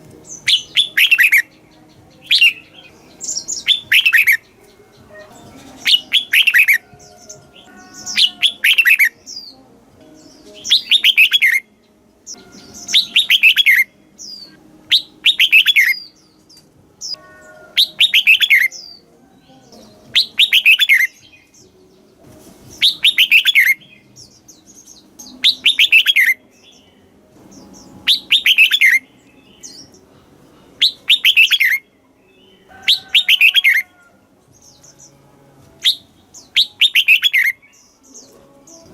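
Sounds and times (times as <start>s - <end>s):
bulbul singing falling phrase: 0.0s - 9.6s, 10.2s - 11.7s, 12.3s - 16.2s, 17.0s - 19.0s, 19.7s - 21.7s, 22.8s - 26.9s, 27.5s - 30.0s, 30.8s - 33.9s, 35.8s - 38.9s.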